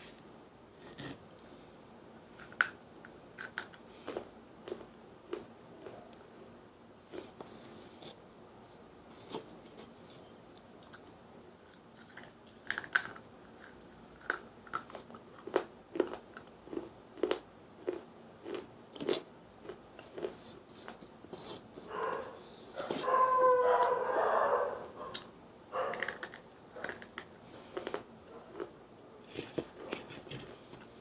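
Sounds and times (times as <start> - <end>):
teeth crunching clay: 12.0 - 20.4.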